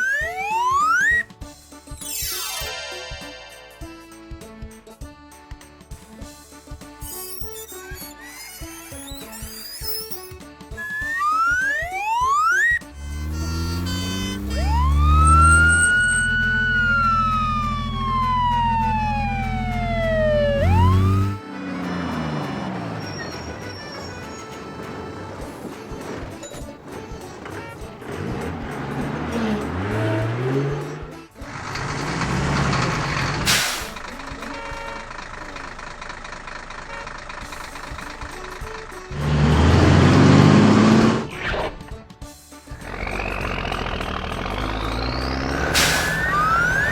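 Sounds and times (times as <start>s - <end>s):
siren winding up and down: 0.0s - 1.3s, 10.8s - 24.6s, 42.9s - 46.9s
engine idling: 10.8s - 41.3s, 42.7s - 46.9s
air brake hiss: 33.4s - 34.0s, 45.6s - 46.4s.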